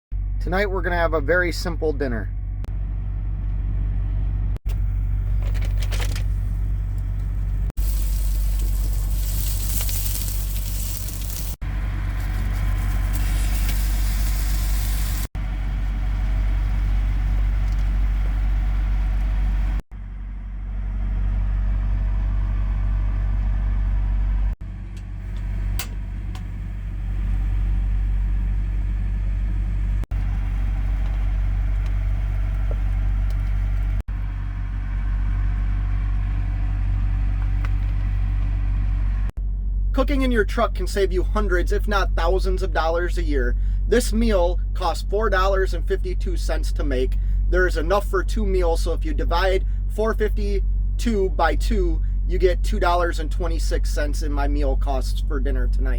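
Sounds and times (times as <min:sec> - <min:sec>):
truck engine idling: 0:00.2 - 0:55.9
loud hiss: 0:07.8 - 0:11.6, 0:12.9 - 0:15.3.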